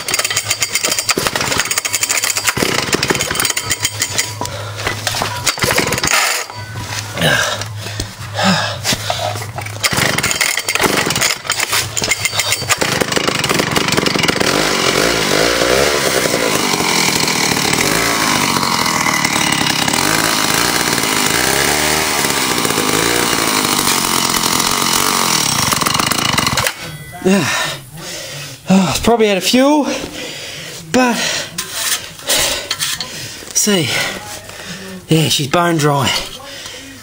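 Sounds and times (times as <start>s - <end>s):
chainsaw engine coughing and running: 0.0s - 29.1s.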